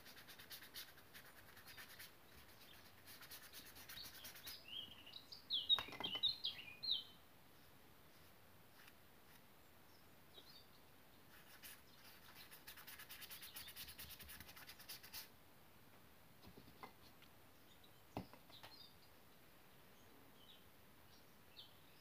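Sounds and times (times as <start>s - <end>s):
faint bird chirps: 0.0s - 7.7s, 9.6s - 15.2s.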